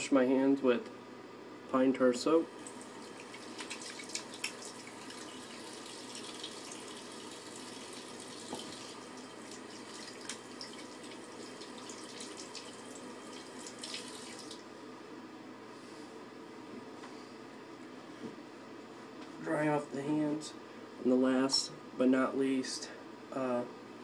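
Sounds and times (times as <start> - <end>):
tap water pouring: 2.6 - 14.6
hands washing under water: 2.8 - 14.6.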